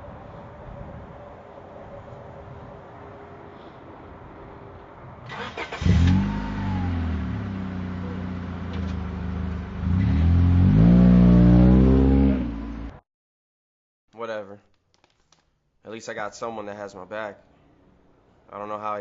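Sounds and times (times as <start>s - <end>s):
car engine starting and revving: 5.3s - 13.0s.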